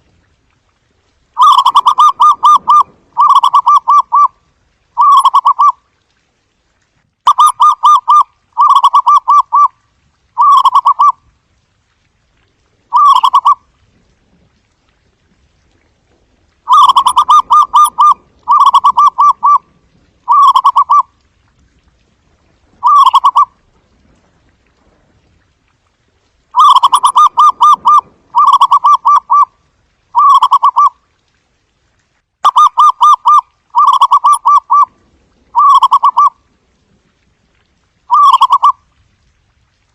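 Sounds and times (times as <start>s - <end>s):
dove cooing: 1.4s - 4.3s, 16.7s - 19.7s, 20.3s - 21.1s, 22.8s - 23.5s, 26.6s - 29.5s, 35.5s - 36.4s, 38.1s - 38.8s.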